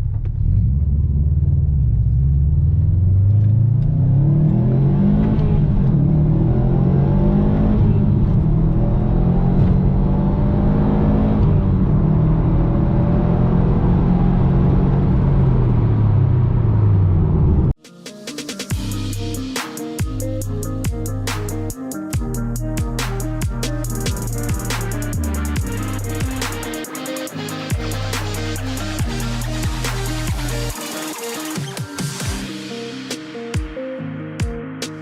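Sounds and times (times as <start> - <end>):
car engine accelerating: 0.0 - 17.8, 20.4 - 32.7.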